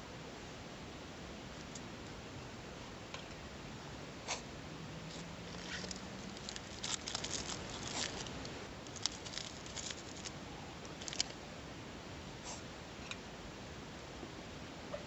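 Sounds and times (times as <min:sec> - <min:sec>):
rustling: 0:05.1 - 0:11.4.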